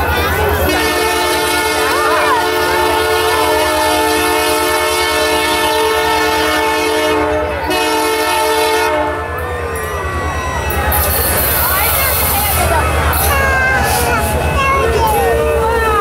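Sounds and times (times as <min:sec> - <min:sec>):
train rumbling: 0:00.0 - 0:16.0
locomotive air horn chord: 0:00.4 - 0:09.9.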